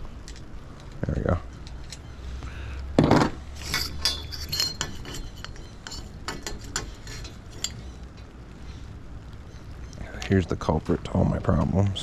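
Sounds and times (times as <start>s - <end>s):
small metal parts clinking: 0.2s - 2.1s, 3.5s - 8.3s.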